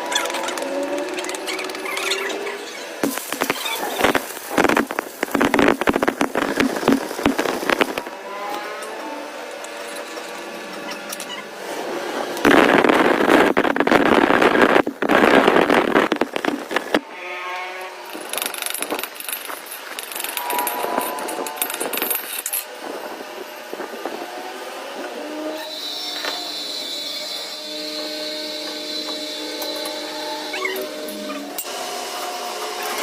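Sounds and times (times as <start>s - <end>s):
loud harsh machine noise: 0.0s - 17.0s, 18.0s - 33.0s
metallic ringing and clinking: 18.1s - 22.7s.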